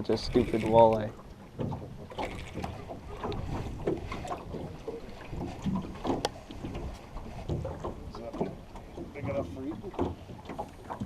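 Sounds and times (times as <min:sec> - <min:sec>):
knocks and clicks in boat: 0:00.0 - 0:11.0
water lapping at boat: 0:00.0 - 0:11.0
wind on microphone: 0:01.7 - 0:10.0.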